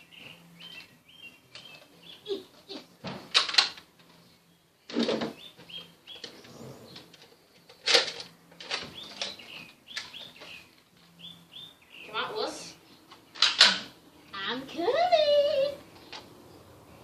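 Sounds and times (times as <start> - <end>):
small bird chirping: 0.0 - 3.0, 4.1 - 7.8, 8.9 - 13.4.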